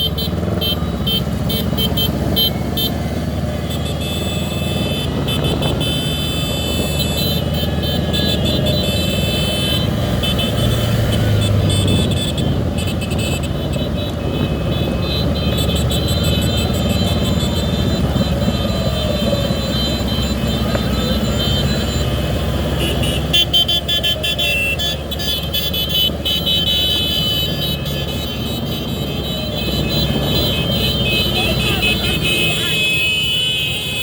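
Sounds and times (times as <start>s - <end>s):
motorcycle engines: 0.0s - 34.0s
siren wail: 14.2s - 25.5s, 26.1s - 33.0s.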